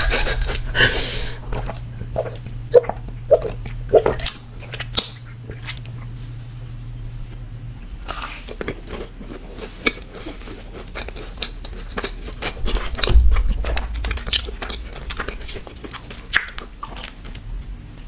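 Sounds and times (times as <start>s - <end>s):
low rumble: 0.0s - 7.9s, 11.9s - 17.8s
cookie crunching: 0.0s - 18.0s
wet mouth clicks: 1.5s - 5.4s.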